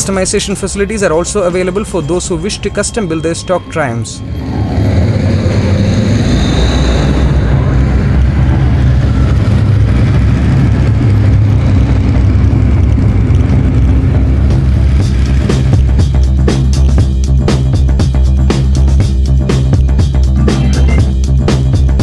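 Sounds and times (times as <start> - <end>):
motorcycle engine rumbling: 4.9 - 22.0.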